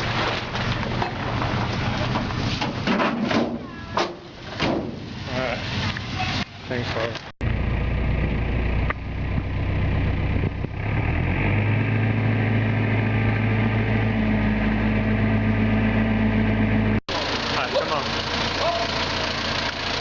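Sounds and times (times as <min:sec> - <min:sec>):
motor engine running: 0:07.4 - 0:20.0.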